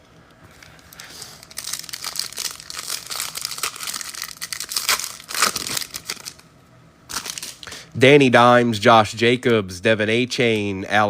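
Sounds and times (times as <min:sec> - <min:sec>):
foil wrapper crinkling and tearing: 0:00.9 - 0:06.4, 0:07.1 - 0:07.7.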